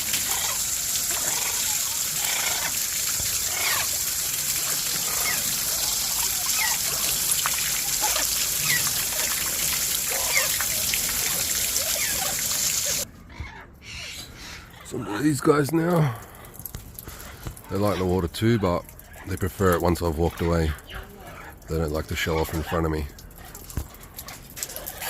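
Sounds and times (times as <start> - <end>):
garden hose spraying water: 0.0 - 13.1.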